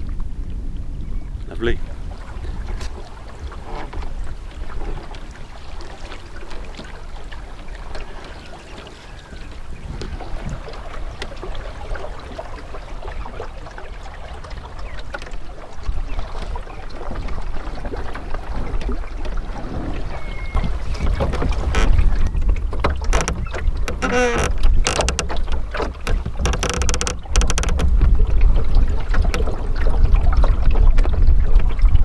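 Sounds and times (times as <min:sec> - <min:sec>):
wind buffeting microphone: 0:00.0 - 0:05.9, 0:06.6 - 0:32.0
water lapping around boat: 0:00.0 - 0:32.0
small knocks: 0:20.6 - 0:28.0.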